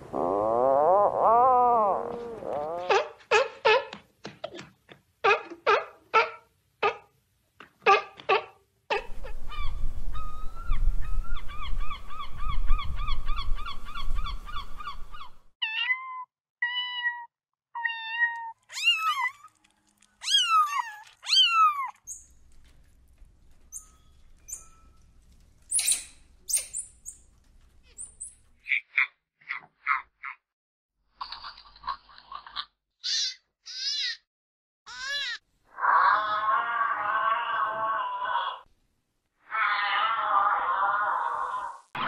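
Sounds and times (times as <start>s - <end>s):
monkey chirping: 23.7s - 24.8s, 25.7s - 27.2s.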